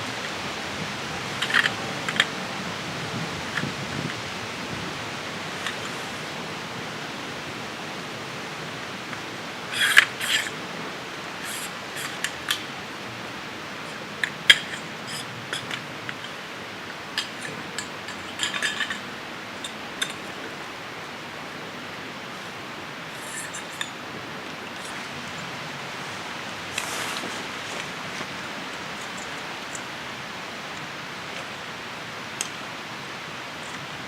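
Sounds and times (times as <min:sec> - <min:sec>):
steady background hiss: 0:00.0 - 0:34.0.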